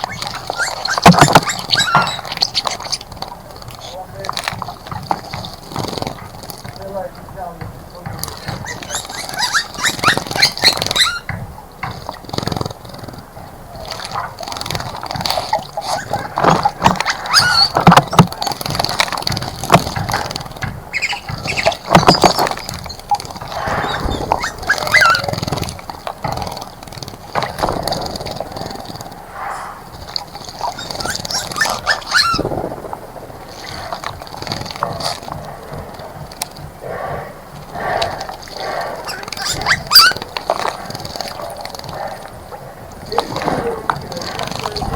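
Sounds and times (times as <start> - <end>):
bird chirps: 0.0 - 3.1, 8.2 - 11.4, 15.4 - 19.0, 20.9 - 26.0, 27.5 - 35.4
birds splashing in water: 0.0 - 44.9.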